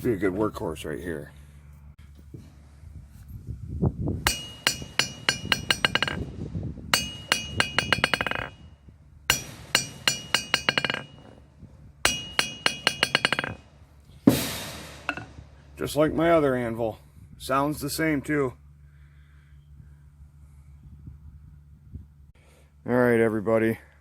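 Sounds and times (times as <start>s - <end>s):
steel object bouncing on anvil: 4.3s - 8.7s, 9.3s - 11.4s, 12.1s - 13.7s, 14.3s - 15.5s.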